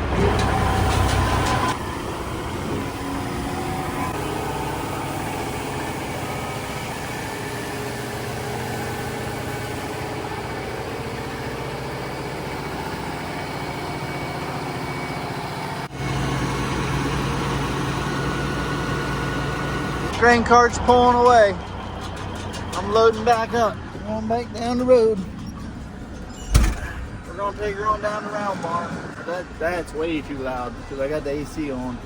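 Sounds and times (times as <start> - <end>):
engine hum: 0.0 - 32.0
farm machinery engine running: 0.0 - 32.0.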